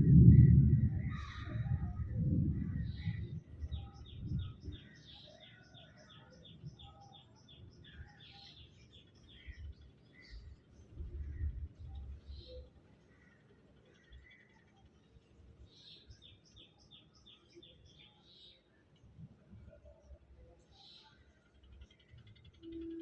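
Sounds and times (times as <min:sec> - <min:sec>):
low rumble: 0:00.0 - 0:04.8
birds calling and chirping: 0:00.0 - 0:18.6.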